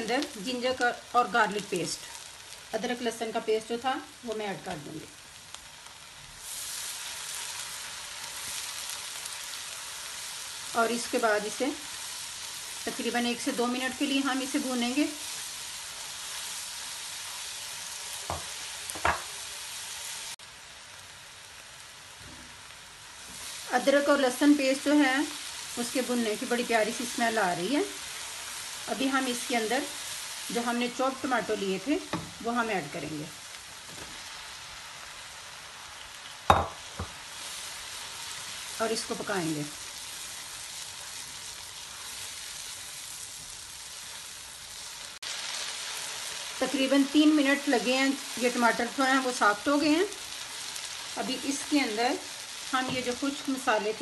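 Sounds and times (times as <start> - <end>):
paste sizzling in hot oil: 0.0 - 54.0
spatula stirring in pan: 33.7 - 46.6.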